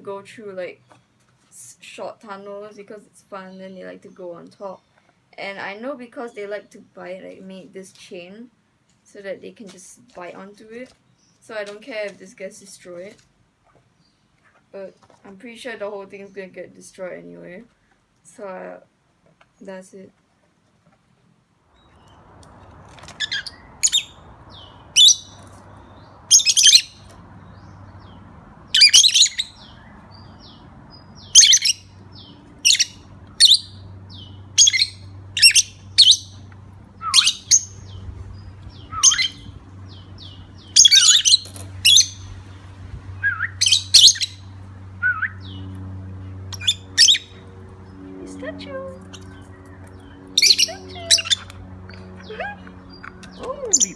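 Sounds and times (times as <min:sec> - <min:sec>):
birds squawking and chirping: 0:21.8 - 0:53.9
steady low hum: 0:21.8 - 0:53.9.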